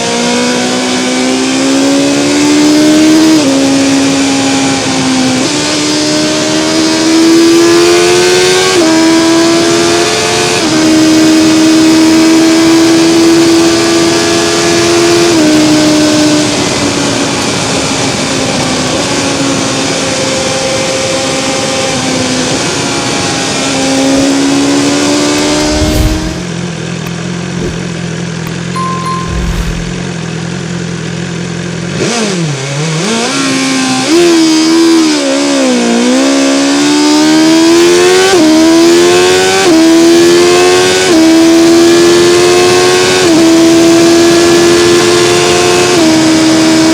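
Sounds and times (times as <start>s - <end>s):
motorcycle engine accelerating: 23.8s - 35.0s
low thump: 25.4s - 26.4s
wind rush: 25.4s - 26.6s, 27.5s - 28.0s, 29.0s - 30.0s.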